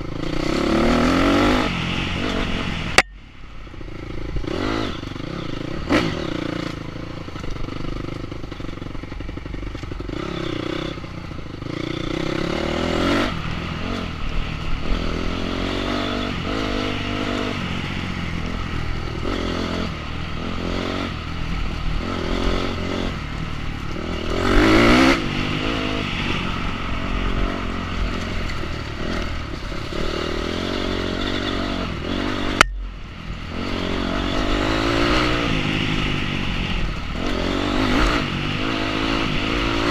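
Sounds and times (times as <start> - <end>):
motorcycle engine revving: 0.0 - 39.9
sharp click: 32.6 - 32.9.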